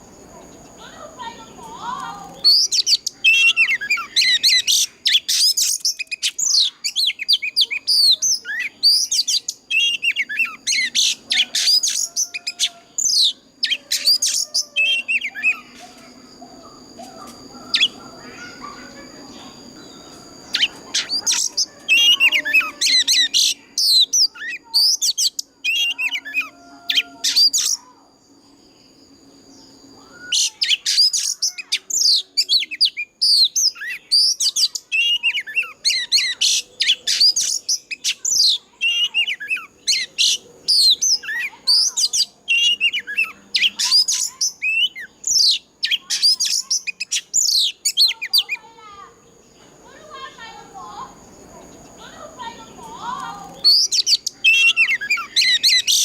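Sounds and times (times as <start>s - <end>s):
bird singing whistled trills: 1.8s - 48.7s, 51.8s - 56.0s.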